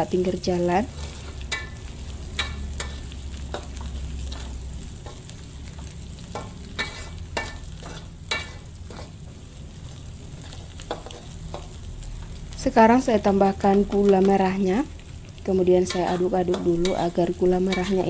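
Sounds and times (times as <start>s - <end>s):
spice paste sizzling in oil: 0.0s - 18.0s
wooden spatula scraping pan: 6.8s - 9.2s.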